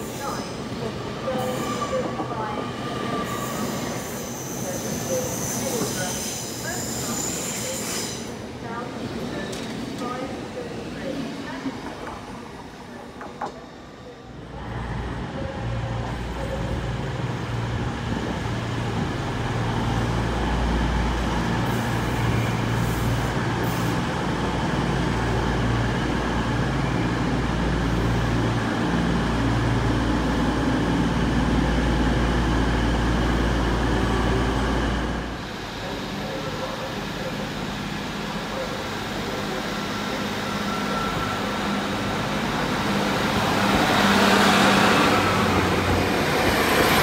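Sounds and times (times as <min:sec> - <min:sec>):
train rumbling past: 0:14.4 - 0:47.0.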